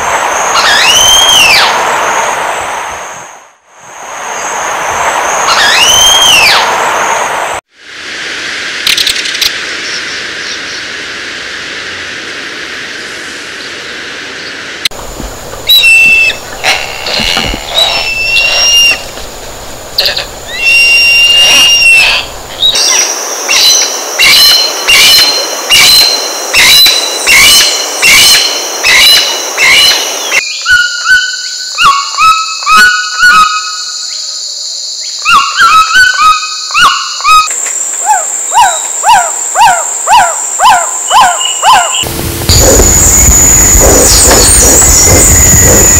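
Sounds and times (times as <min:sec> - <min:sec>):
bird whistled notes: 0:15.7 - 0:16.4, 0:20.5 - 0:31.5.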